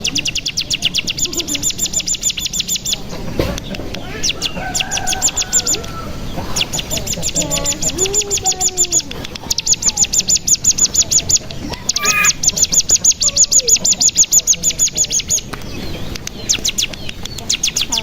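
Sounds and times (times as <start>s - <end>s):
bird trilling: 4.0s - 15.4s.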